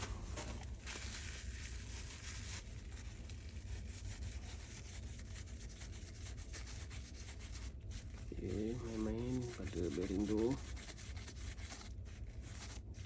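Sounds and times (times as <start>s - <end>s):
roller bearing rubbing and scratching: 8.3s - 11.8s.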